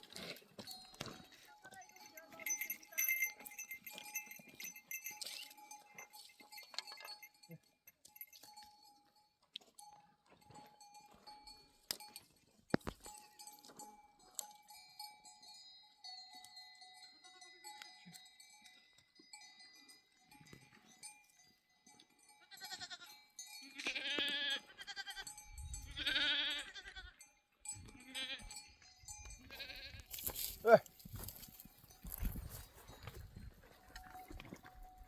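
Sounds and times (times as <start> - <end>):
livestock bells ringing: 0.0 - 35.0
sheep bleating: 22.5 - 23.1, 23.7 - 25.3, 25.9 - 27.2, 27.9 - 28.5, 29.5 - 30.8.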